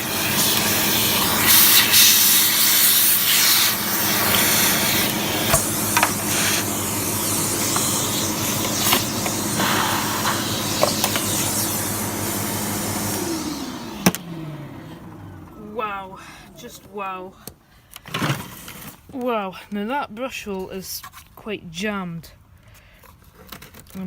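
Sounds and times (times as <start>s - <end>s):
motor winding down: 0.0s - 17.0s
vacuum cleaner running: 0.0s - 17.5s
vacuum switch click: 13.9s - 15.6s.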